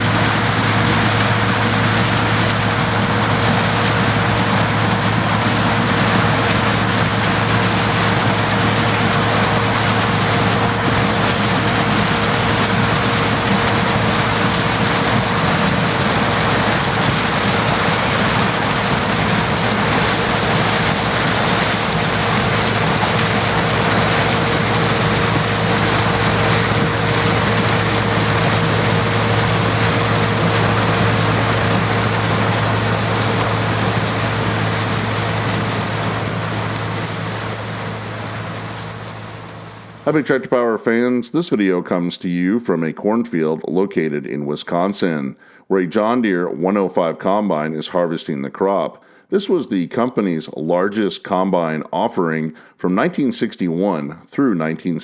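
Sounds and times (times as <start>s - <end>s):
combine harvester engine droning: 0.0s - 40.4s.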